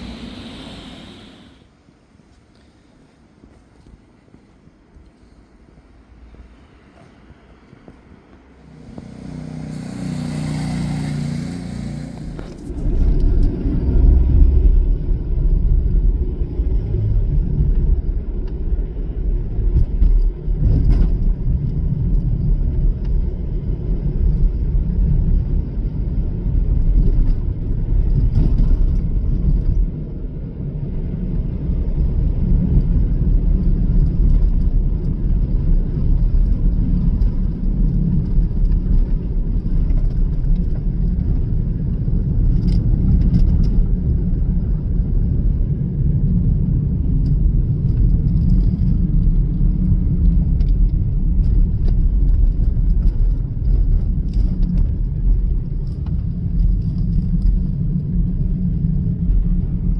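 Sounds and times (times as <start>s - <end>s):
motorcycle engine running: 0.0s - 1.6s
low rumble of motor traffic: 0.0s - 59.9s.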